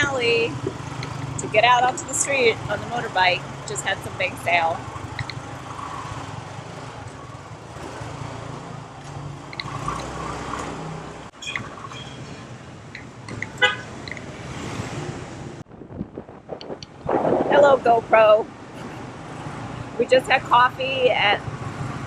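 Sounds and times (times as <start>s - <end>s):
car horn beeps: 13.4s - 14.0s.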